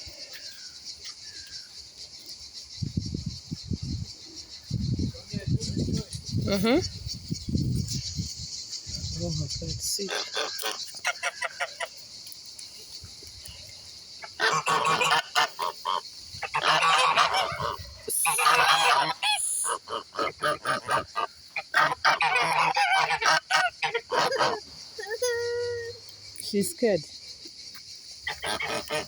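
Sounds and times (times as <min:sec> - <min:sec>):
geese honking: 0:10.0 - 0:11.9, 0:14.2 - 0:24.6, 0:28.3 - 0:29.0
high-pitched hiss: 0:15.4 - 0:20.0.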